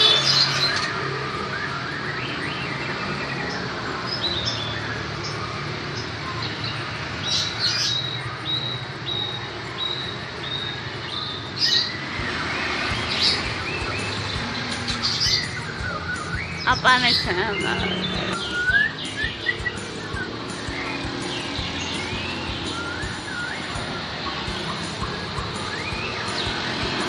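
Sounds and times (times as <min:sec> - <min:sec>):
steady background noise: 0:00.0 - 0:27.0
bird chirping: 0:02.1 - 0:27.0.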